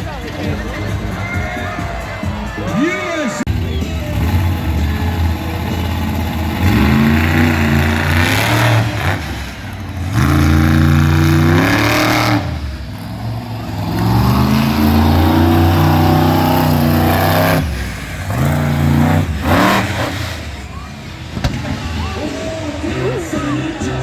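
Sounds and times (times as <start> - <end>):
engine revving hard: 3.5 - 20.8.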